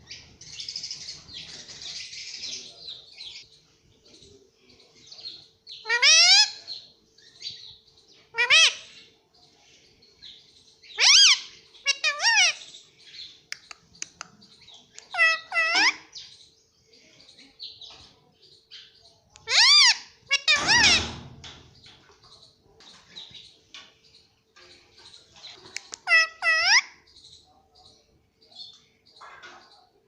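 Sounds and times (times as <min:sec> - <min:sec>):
parakeet shrill calls: 0:10.9 - 0:12.7, 0:15.1 - 0:16.1, 0:19.5 - 0:21.2, 0:26.0 - 0:27.0
parakeet raspy chatter: 0:11.0 - 0:12.7, 0:15.0 - 0:16.1, 0:19.4 - 0:21.1, 0:25.8 - 0:27.0.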